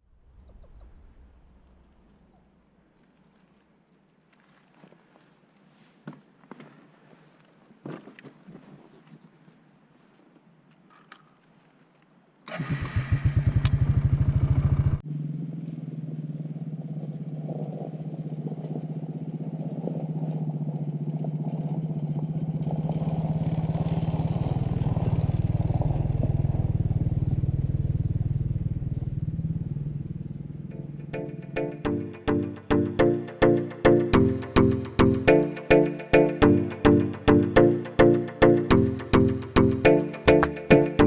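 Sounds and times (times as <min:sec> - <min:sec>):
engine starter cranking: 0:12.5 - 0:14.1.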